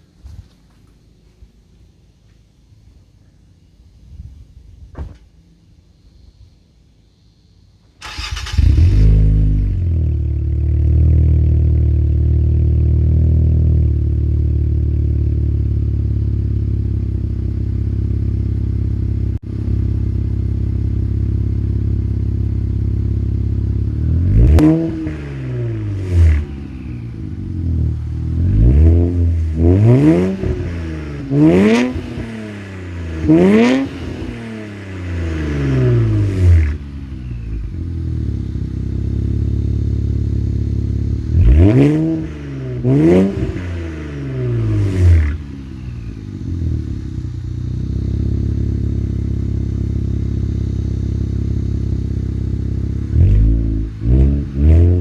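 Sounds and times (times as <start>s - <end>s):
car engine starting and idling: 4.8s - 55.0s
engine revving: 8.0s - 15.7s, 20.4s - 55.0s.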